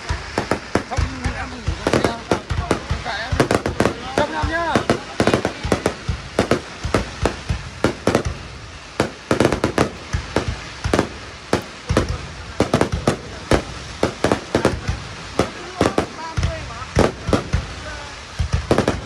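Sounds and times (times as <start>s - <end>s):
fireworks bursting with sharp bangs: 0.0s - 19.0s.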